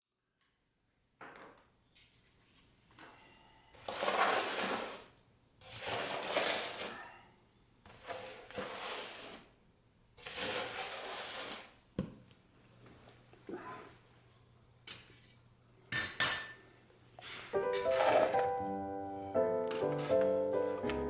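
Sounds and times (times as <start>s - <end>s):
ash scraped out of fireplace: 3.8s - 7.2s, 7.9s - 9.6s, 10.2s - 11.8s.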